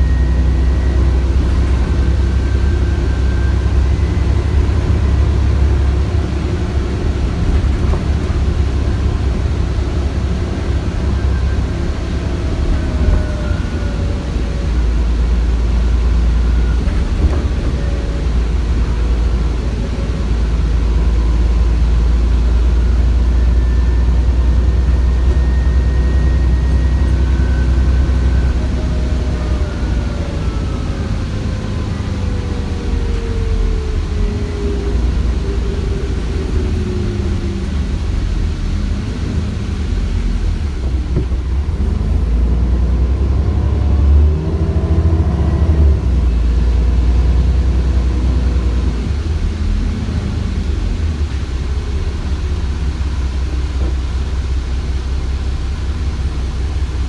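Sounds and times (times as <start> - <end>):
turbo whine: 0.0 - 42.6
bus diesel engine rumble: 0.0 - 57.0.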